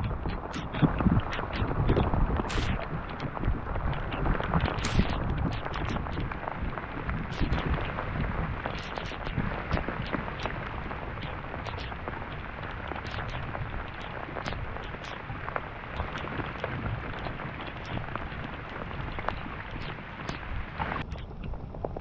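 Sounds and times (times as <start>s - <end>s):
rain pattering: 0.0s - 22.0s
wind rumbling on microphone: 0.0s - 22.0s.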